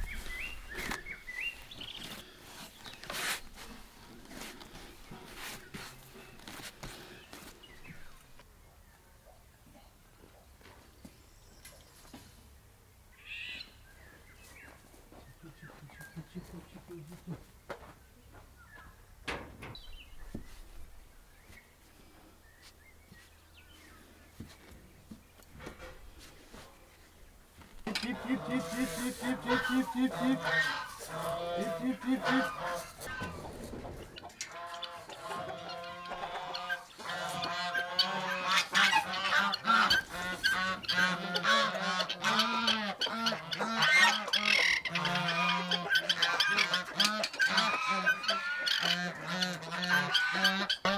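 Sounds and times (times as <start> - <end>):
birds chirping: 0.0 - 12.2, 12.9 - 50.9
geese honking: 27.8 - 50.9.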